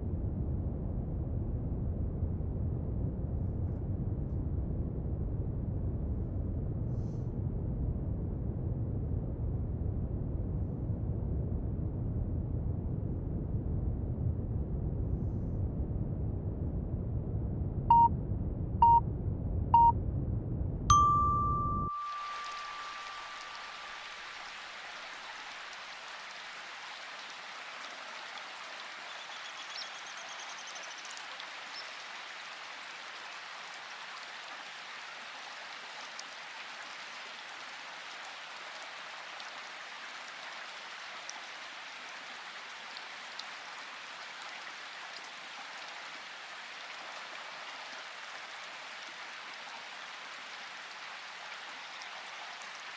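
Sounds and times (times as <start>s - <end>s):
low brown noise: 0.0s - 31.9s
timer alarm beeps and chime: 20.9s - 23.9s
steady rain-like hiss: 21.1s - 52.9s.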